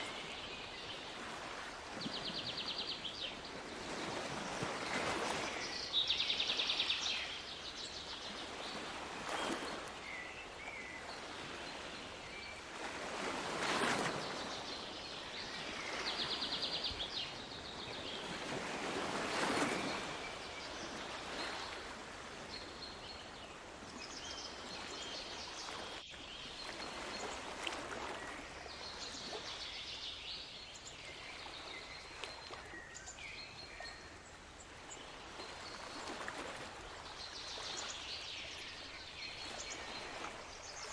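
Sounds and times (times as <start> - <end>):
waves washing on shore: 0.0 - 40.9.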